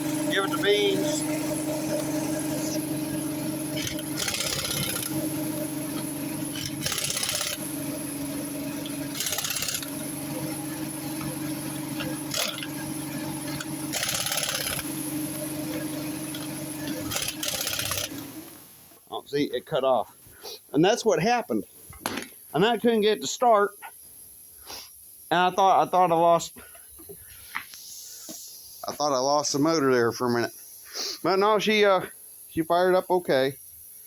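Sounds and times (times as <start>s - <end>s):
small gasoline engine running: 0.0s - 18.8s
short bursts of hiss: 24.2s - 25.3s, 27.2s - 29.0s, 30.5s - 31.3s.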